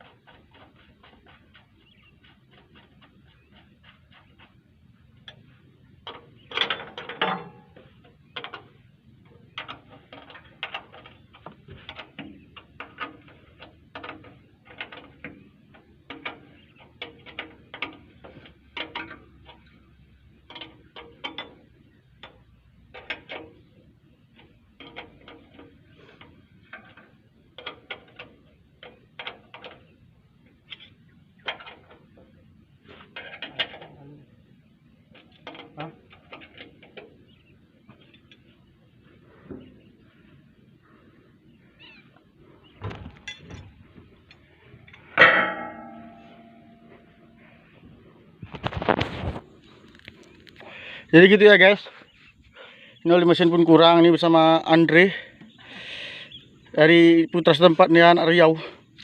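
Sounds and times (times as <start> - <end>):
metallic clicks and knocks: 0.0 - 4.6, 5.2 - 23.8, 24.4 - 34.1, 35.1 - 37.3, 42.8 - 50.6.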